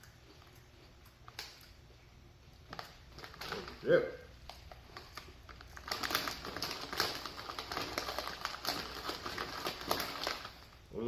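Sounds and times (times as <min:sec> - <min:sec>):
chips crunching while chewed: 0:04.5 - 0:10.7.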